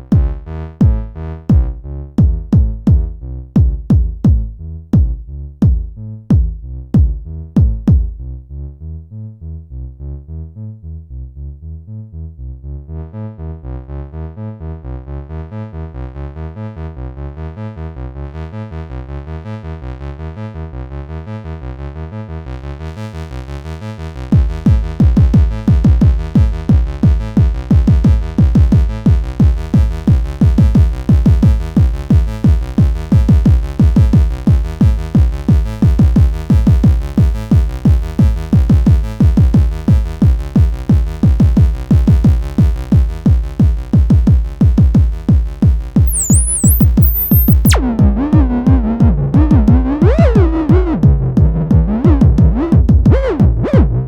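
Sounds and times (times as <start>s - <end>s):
electronic synthesizer music: 46.1s - 47.8s.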